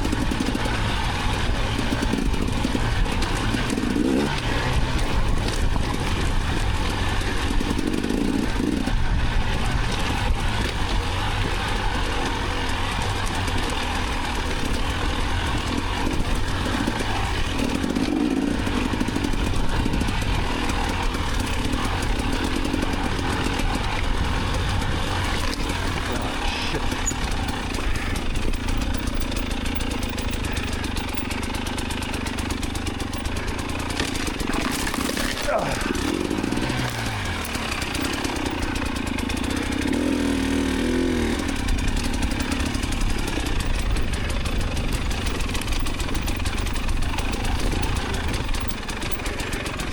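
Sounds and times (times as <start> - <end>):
dirt bike engine: 0.0 - 49.9.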